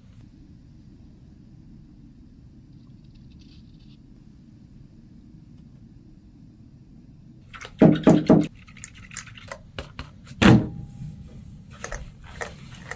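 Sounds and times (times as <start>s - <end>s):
loud knocks: 10.4s - 11.3s
heavy knock with ring: 10.4s - 11.4s.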